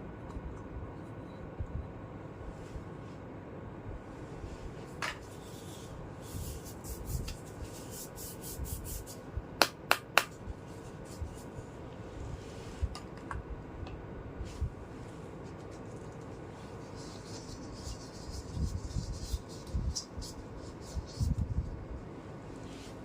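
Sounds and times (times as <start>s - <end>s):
plastic toy pieces rubbing: 15.5s - 21.4s.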